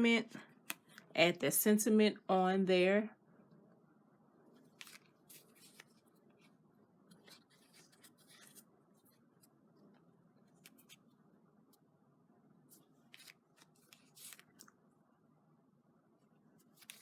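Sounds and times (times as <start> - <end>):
paper rustling and ticking: 4.6 - 6.4, 13.1 - 14.7, 16.6 - 17.0.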